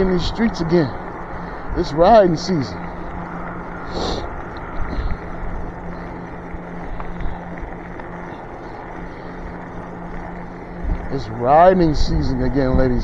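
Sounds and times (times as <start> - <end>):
electric motor hum: 0.0 - 13.0
wind and road rumble: 0.0 - 13.0.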